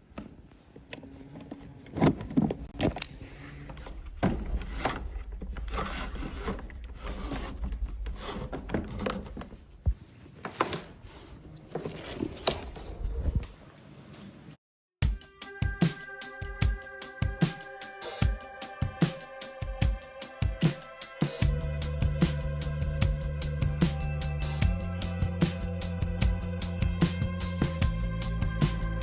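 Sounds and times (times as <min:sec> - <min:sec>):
scraping and rubbing: 0:00.2 - 0:13.4
low rumble: 0:03.2 - 0:09.8.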